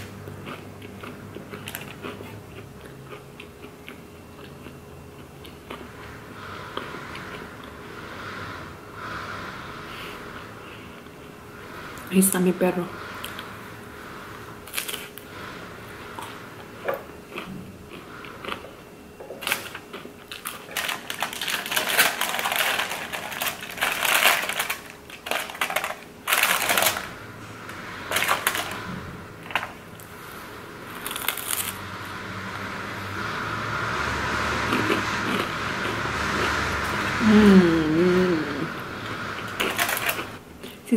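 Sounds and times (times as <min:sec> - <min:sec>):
crunching and chewing food: 0:00.0 - 0:12.1, 0:13.1 - 0:37.2, 0:39.0 - 0:40.8
aluminium foil crinkling: 0:19.4 - 0:27.2.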